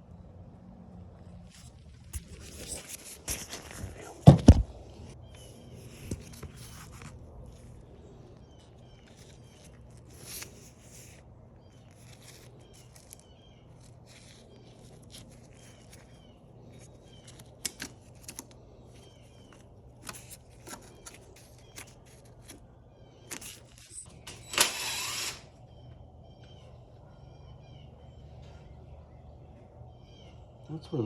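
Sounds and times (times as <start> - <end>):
steady low hum: 0.0 - 31.0
rattle and scrape: 1.4 - 7.8.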